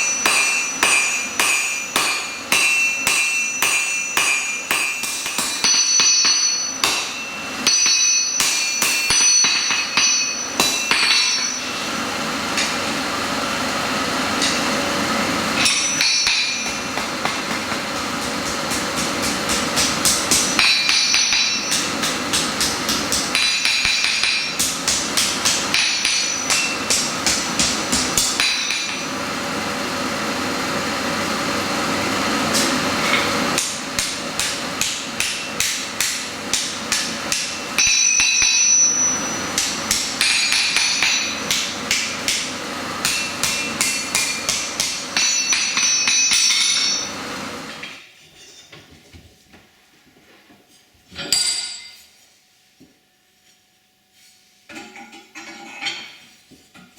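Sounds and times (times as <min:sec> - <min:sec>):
hammer striking steel on anvil: 0:00.0 - 0:13.0, 0:14.4 - 0:14.9, 0:15.5 - 0:29.3, 0:32.5 - 0:48.1, 0:51.2 - 0:52.1.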